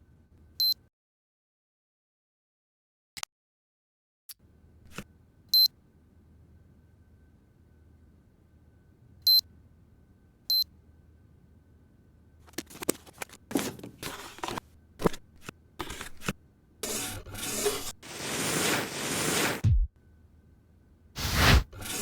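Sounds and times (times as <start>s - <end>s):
rustling handling noise: 12.4s - 16.4s.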